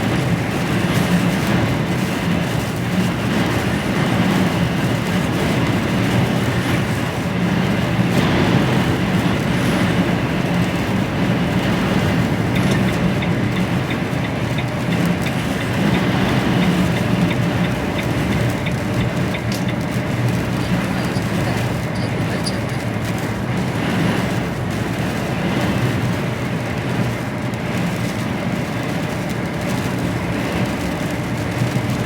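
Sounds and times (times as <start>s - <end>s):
truck engine and road noise: 0.0s - 32.0s
faint ticking: 7.6s - 24.5s.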